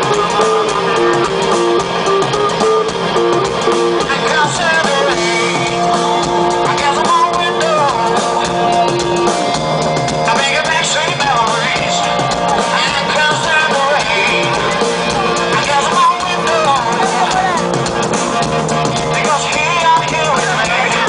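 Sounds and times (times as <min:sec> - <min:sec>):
band playing rock song: 0:00.0 - 0:21.0
guitar riff: 0:00.0 - 0:21.0.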